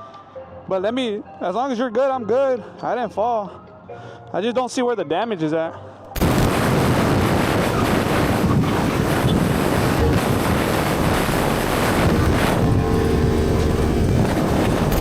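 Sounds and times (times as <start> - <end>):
wind rushing over microphone: 6.2 - 15.0.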